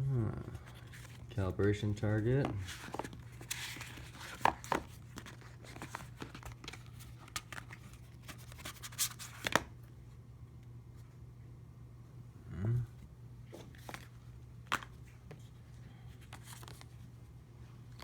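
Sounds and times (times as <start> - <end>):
low steady hum: 0.0 - 18.0
packaging rustling and crinkling: 2.5 - 9.6.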